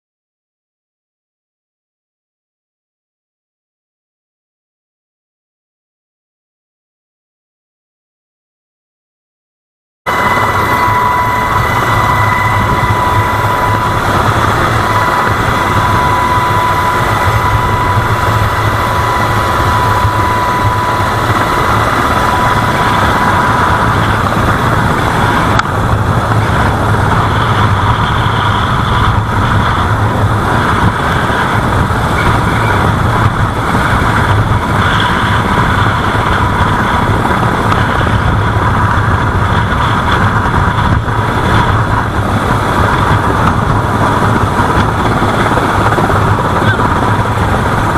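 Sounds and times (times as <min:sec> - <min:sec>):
engine running: 0:10.1 - 0:47.9
high whine: 0:10.1 - 0:47.9.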